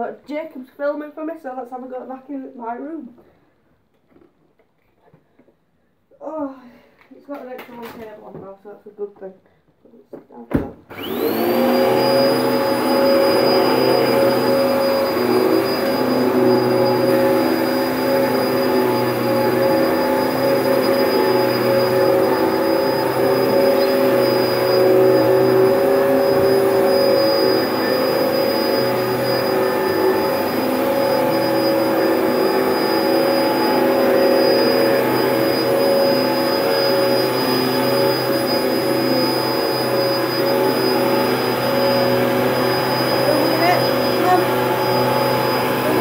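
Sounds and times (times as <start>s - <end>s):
vacuum cleaner running: 10.9s - 46.0s.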